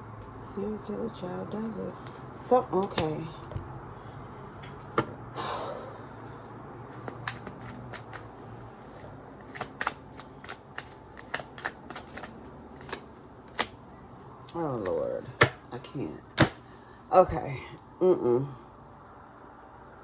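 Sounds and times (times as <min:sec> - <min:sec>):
cards swishing: 0:06.9 - 0:13.7
cards clicking and snapping: 0:07.0 - 0:08.3, 0:09.0 - 0:13.8.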